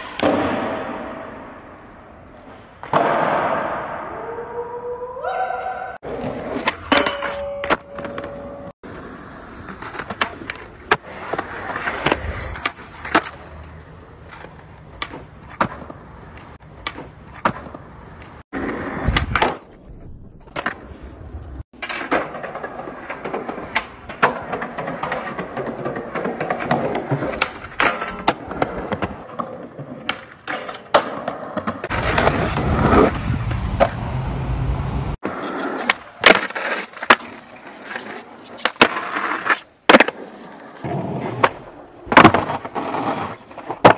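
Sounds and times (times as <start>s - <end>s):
skateboard tail pops and landings: 0.0s - 4.1s, 14.9s - 19.8s, 38.5s - 43.9s
skateboard wheels rolling on concrete: 0.0s - 5.1s, 5.9s - 43.9s.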